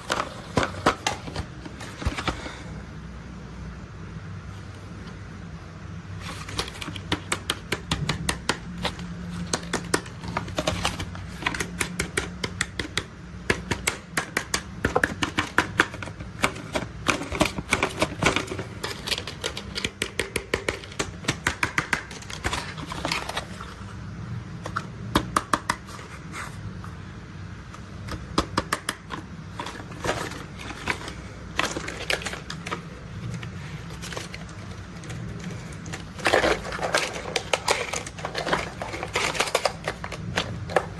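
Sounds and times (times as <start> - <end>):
steady low hum: 0.0 - 40.9
plastic toys clicking and rattling: 6.2 - 23.9, 28.0 - 40.9.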